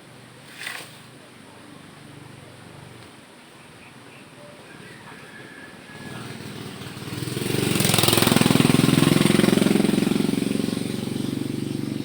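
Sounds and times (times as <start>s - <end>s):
vehicle engine passing by: 5.9s - 12.0s.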